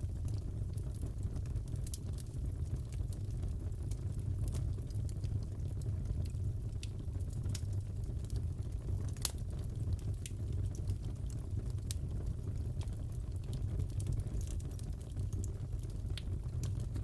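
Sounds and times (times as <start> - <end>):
low rumble of burning: 0.0 - 17.0
wood fire crackling: 0.0 - 17.0.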